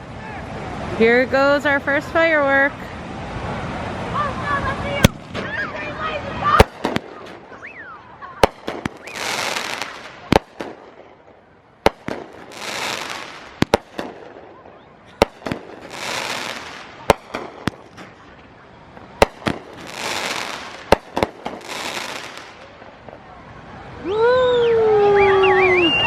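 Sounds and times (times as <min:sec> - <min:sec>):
firework hissing and sparkling: 0:02.8 - 0:23.2
firework bangs: 0:04.5 - 0:23.3.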